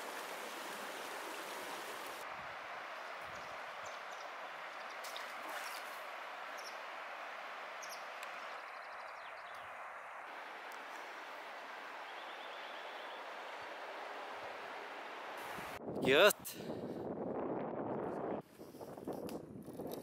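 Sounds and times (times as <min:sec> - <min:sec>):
river water rushing: 0:00.0 - 0:08.8, 0:09.6 - 0:15.8
bird chirps and trills: 0:07.8 - 0:09.7.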